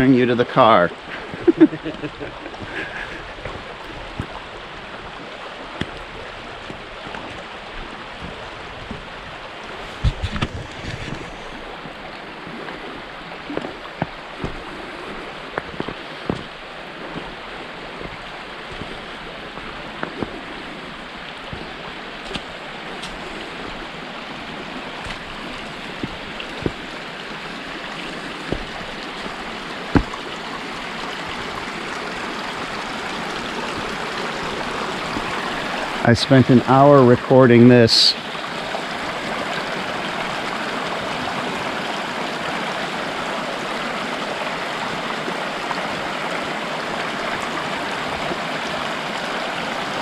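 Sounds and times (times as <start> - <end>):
spring water running and splashing: 0.0 - 50.0.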